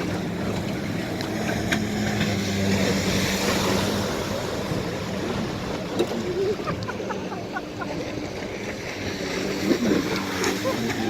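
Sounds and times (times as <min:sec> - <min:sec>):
jet ski engine running: 0:00.0 - 0:11.0
wind: 0:00.0 - 0:11.0.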